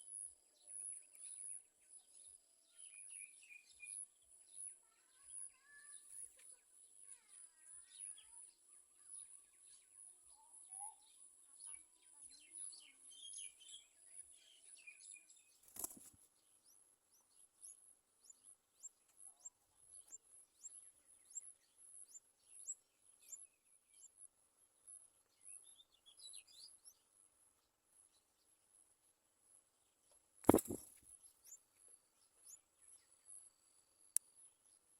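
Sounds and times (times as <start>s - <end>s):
faint bird chirps: 0.0s - 34.9s
sharp click: 30.4s - 31.0s.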